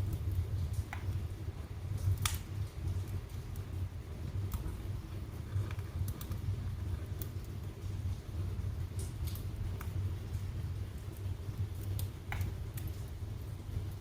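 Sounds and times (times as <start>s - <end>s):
fire crackles and pops: 0.0s - 14.0s
low rumble of flames: 0.0s - 14.0s.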